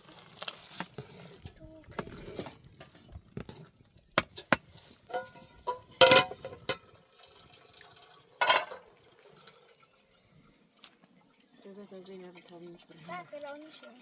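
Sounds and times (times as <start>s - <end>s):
sharp clinks and knocks: 4.2s - 6.9s.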